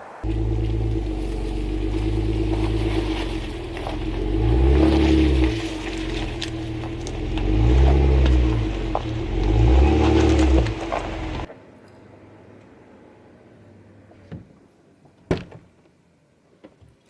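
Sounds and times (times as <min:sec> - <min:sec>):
vehicle engine revving: 0:00.2 - 0:11.5.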